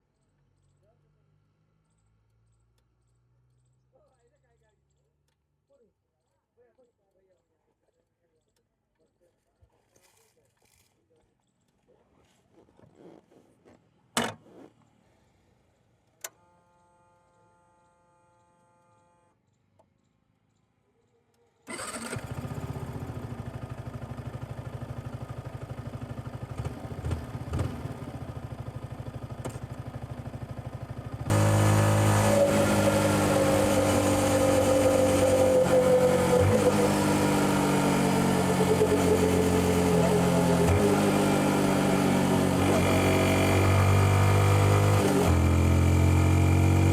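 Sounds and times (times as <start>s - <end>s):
click: 1.9s - 3.2s, 5.2s - 5.4s, 16.0s - 16.4s
motorcycle engine running: 21.8s - 46.9s.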